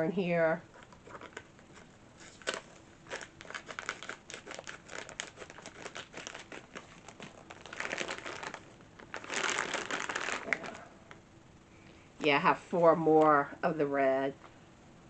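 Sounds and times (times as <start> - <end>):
plastic bag crinkling and rustling: 0.7 - 10.9.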